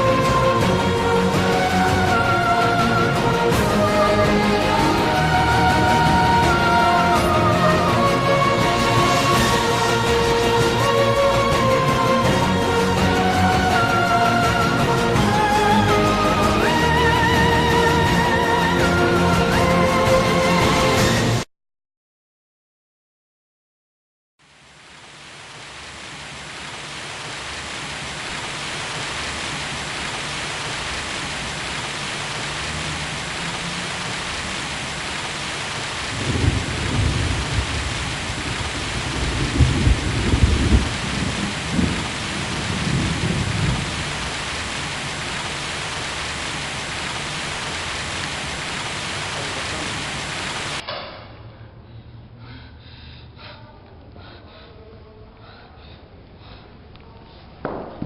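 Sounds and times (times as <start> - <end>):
heavy rain: 0.0 - 21.5, 24.4 - 50.8, 57.6 - 58.0
thunder rumble: 30.4 - 46.3, 57.6 - 58.0.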